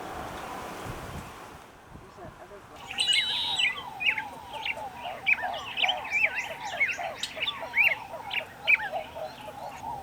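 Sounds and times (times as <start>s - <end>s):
flock of birds chattering: 2.7s - 10.0s.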